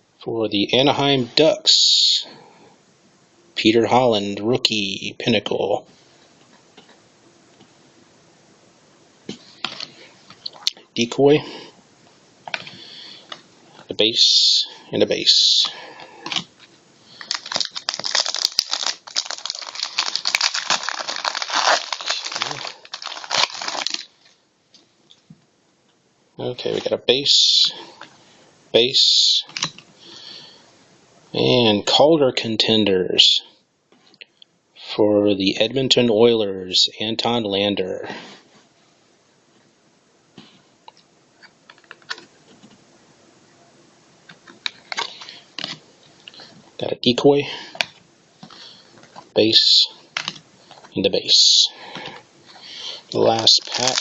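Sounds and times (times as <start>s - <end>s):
trading cards being shuffled: 15.5s - 24.1s, 53.2s - 54.0s
wrapper crinkling and tearing: 17.2s - 24.4s, 53.1s - 54.0s.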